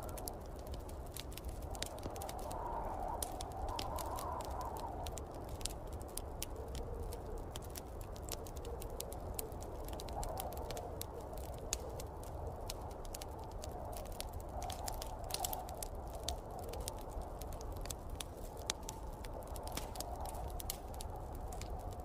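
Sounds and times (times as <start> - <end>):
snowstorm wind rushing: 0.0 - 6.1
wood fire crackling: 0.0 - 22.0.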